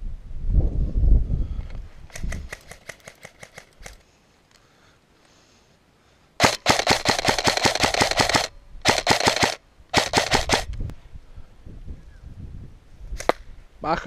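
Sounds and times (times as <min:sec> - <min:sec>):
airsoft rifle firing bursts: 0:06.4 - 0:10.7.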